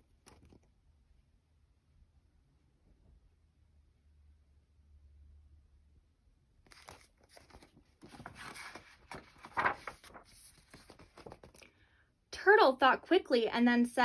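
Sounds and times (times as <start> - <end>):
book pages rustling: 0.1 - 0.7, 6.7 - 11.7.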